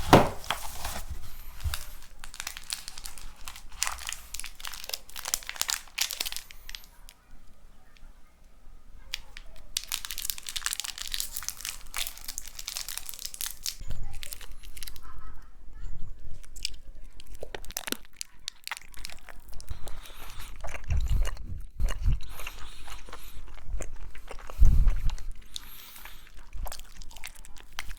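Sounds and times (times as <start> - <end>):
wet chewing: 0.0 - 7.3, 9.0 - 15.3, 16.2 - 27.9
crunchy biting of fried food: 16.5 - 27.9.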